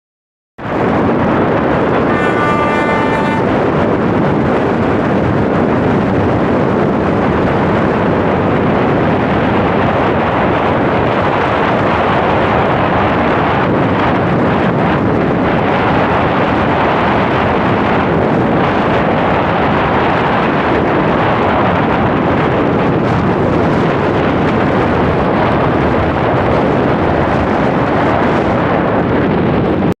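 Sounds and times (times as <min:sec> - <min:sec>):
train rumbling: 0:00.6 - 0:29.9
wind noise on microphone: 0:00.6 - 0:30.0
train horn blast: 0:01.8 - 0:04.8.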